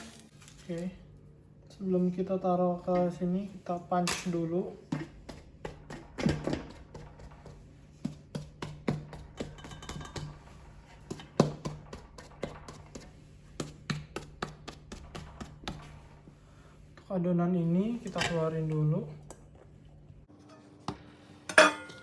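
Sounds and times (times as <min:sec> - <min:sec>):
low steady hum: 0:00.0 - 0:22.0
hands punching bread dough: 0:04.9 - 0:16.0.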